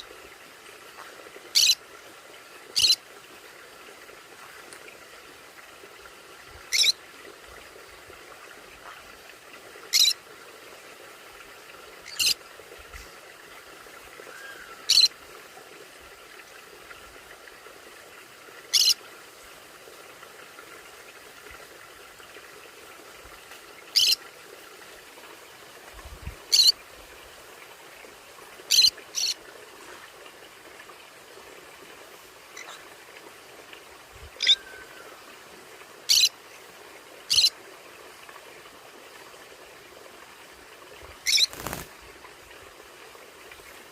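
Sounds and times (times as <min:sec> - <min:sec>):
conures giving high-pitched calls: 0:01.5 - 0:01.8, 0:02.8 - 0:03.0, 0:06.7 - 0:07.0, 0:09.9 - 0:10.2, 0:12.0 - 0:12.4, 0:14.3 - 0:15.1, 0:18.7 - 0:19.0, 0:23.9 - 0:24.2, 0:26.5 - 0:26.8, 0:28.7 - 0:29.4, 0:34.4 - 0:34.9, 0:36.1 - 0:36.3, 0:37.3 - 0:37.5, 0:41.2 - 0:41.9.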